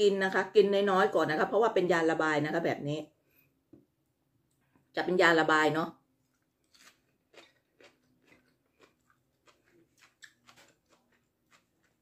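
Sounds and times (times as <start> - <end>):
person chewing crunchy food: 6.2 - 12.0.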